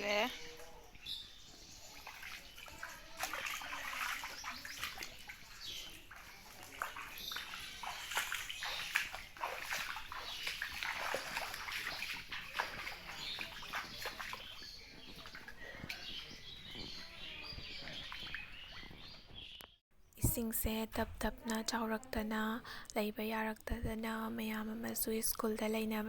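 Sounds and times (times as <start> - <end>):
floodwater splashing: 0.1 - 18.8.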